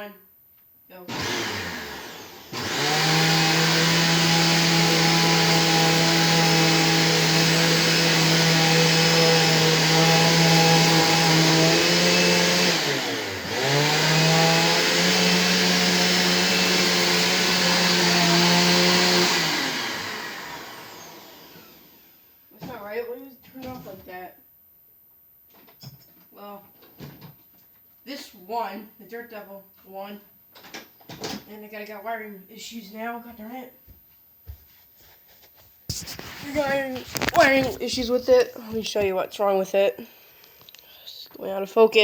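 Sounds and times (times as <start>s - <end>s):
vacuum cleaner motor: 1.1s - 22.3s, 35.9s - 39.2s.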